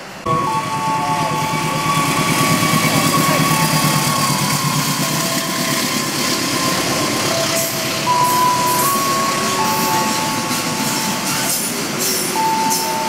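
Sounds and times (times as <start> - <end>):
diesel locomotive pulsing rumble: 0.0 - 13.0
train wagons rolling past: 0.0 - 13.0
thin high-pitched tones: 0.3 - 13.0.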